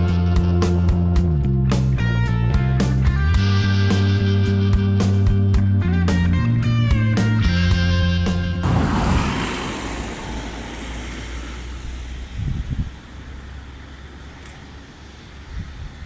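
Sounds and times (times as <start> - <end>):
dull low thumps: 8.4 - 13.8
steady rushing noise: 8.6 - 13.4.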